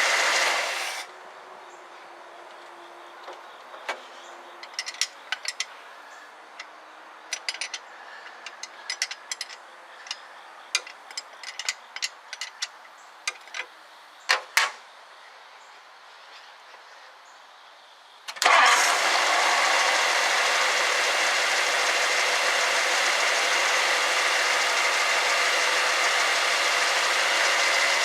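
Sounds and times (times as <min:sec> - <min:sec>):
steady background hiss: 0:00.8 - 0:18.6
hand tools clicking on metal: 0:04.6 - 0:05.8, 0:07.3 - 0:10.2, 0:10.8 - 0:13.7.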